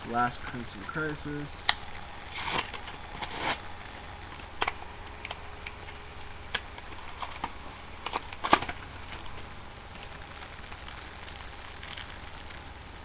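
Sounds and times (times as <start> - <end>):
foil pack crinkling: 6.5 - 12.7.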